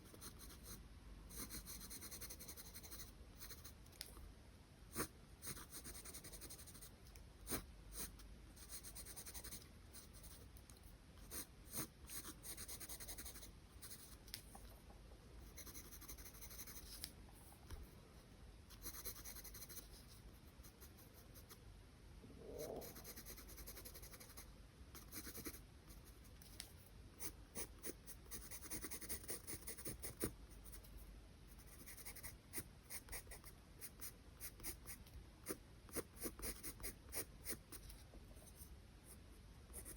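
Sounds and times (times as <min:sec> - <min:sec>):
pencil scratching on paper: 0:00.0 - 0:03.8, 0:04.9 - 0:06.9, 0:07.5 - 0:10.4, 0:11.3 - 0:14.2, 0:15.4 - 0:17.1, 0:18.8 - 0:21.6, 0:22.8 - 0:24.4, 0:25.0 - 0:26.2, 0:27.2 - 0:30.8, 0:31.6 - 0:38.7.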